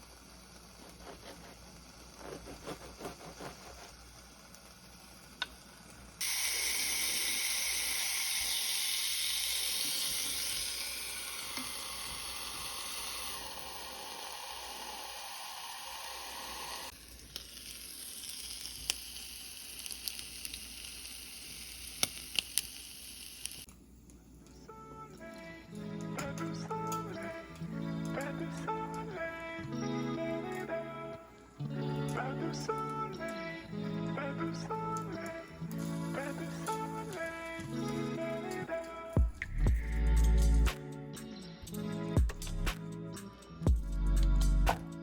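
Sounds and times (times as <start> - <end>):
food sizzling in a frying pan: 4.0 - 23.7.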